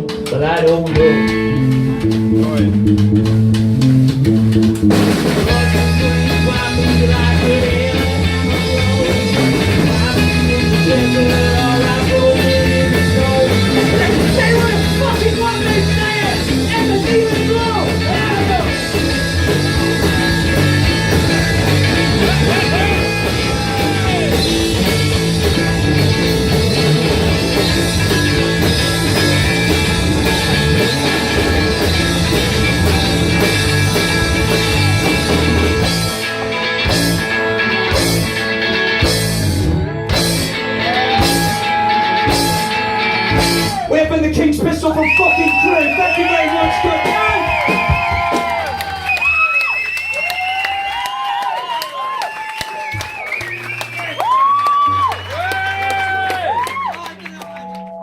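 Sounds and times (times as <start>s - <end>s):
bass guitar: 0.0s - 58.0s
drum kit: 0.0s - 58.0s
electric guitar: 0.0s - 58.0s.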